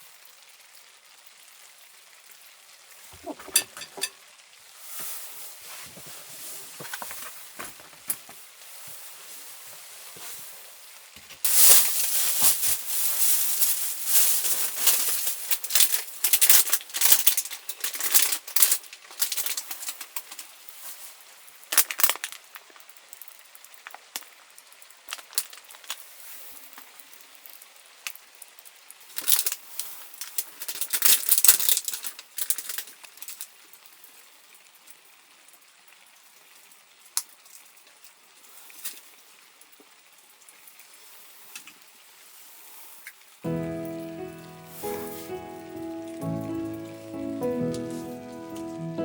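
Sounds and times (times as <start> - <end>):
rustling of handled objects: 3.1 - 4.2, 4.9 - 10.5, 11.4 - 21.2, 43.5 - 49.0.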